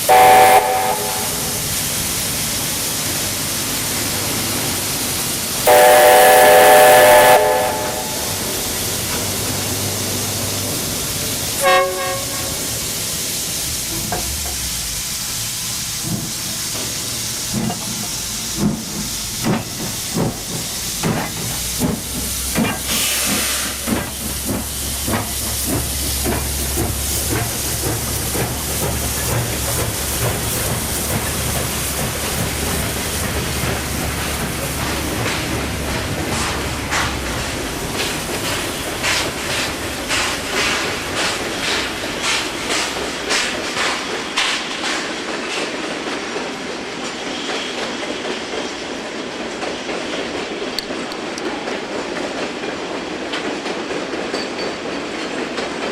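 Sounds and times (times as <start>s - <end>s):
steam locomotive whistle: 0.0s - 1.6s, 5.7s - 8.5s, 11.6s - 12.6s
steam hissing: 0.0s - 53.2s
train rolling rumble: 0.0s - 55.9s
locomotive exhaust chuffs: 3.2s - 43.7s.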